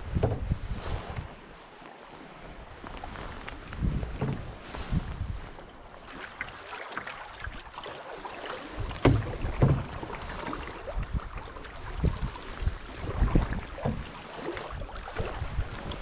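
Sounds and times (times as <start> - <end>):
wood knocking against hull: 0.0 - 0.6, 3.8 - 4.6, 8.7 - 10.6, 13.2 - 14.1
paddle strokes: 0.0 - 16.0.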